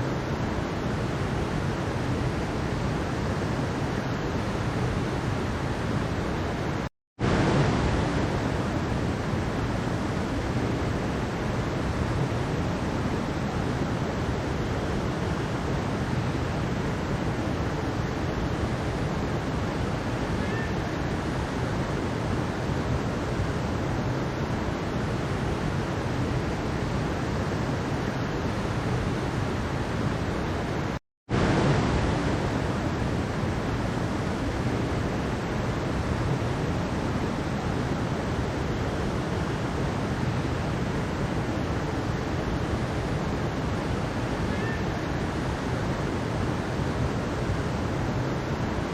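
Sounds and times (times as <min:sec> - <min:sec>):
stream water rushing over rocks: 0:00.0 - 0:48.9.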